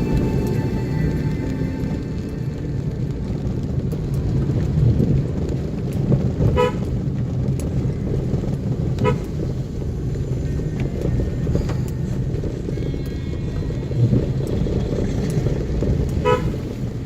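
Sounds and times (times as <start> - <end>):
car engine rumble and road noise: 0.0 - 17.0
vehicle horn toots: 6.6 - 6.9, 16.2 - 16.7.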